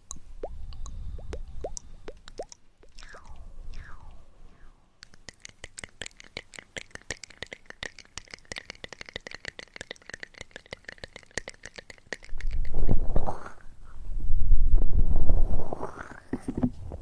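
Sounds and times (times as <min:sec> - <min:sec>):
muffled rubbing on microphone: 0:12.5 - 0:13.6, 0:14.3 - 0:17.0.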